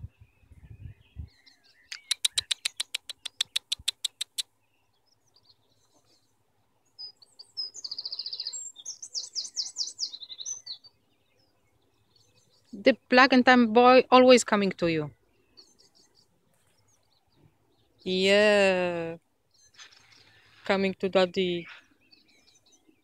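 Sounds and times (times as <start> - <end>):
bird trills and chirps: 0.0 - 23.0
bird chipping notes: 0.4 - 13.3.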